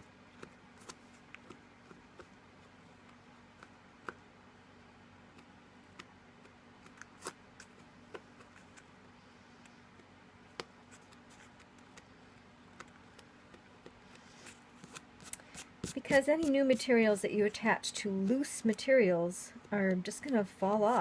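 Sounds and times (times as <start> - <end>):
low steady hum: 0.0 - 21.0
small clicks and scratching on paper: 0.3 - 4.2, 5.3 - 8.9, 9.6 - 16.8.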